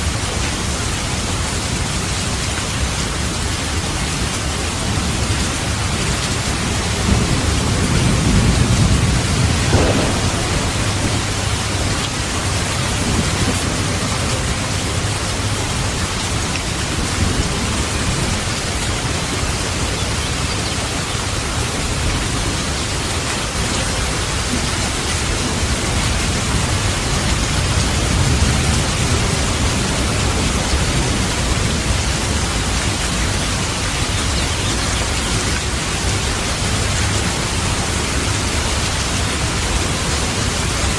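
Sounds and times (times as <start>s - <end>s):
heavy rain: 0.0s - 40.9s
rolling thunder: 6.7s - 18.5s.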